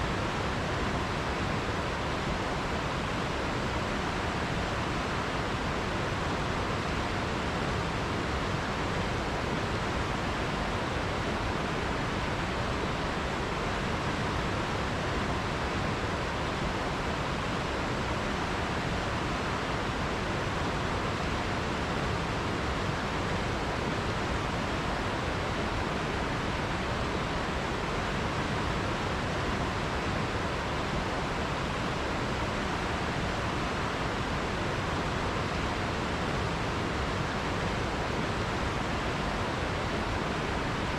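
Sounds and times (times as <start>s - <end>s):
river water rushing over rocks: 0.0s - 40.9s.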